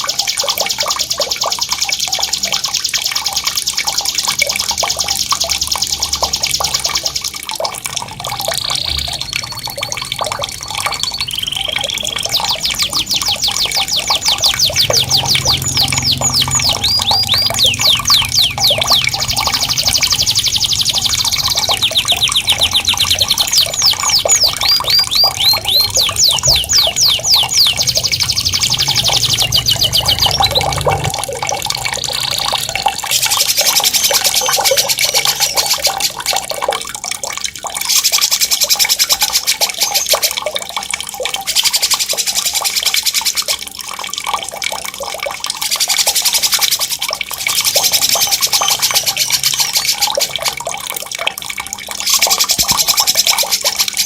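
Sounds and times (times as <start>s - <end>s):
running splashing water: 0.0s - 54.0s
songbird shrill rolling trill: 10.9s - 31.1s.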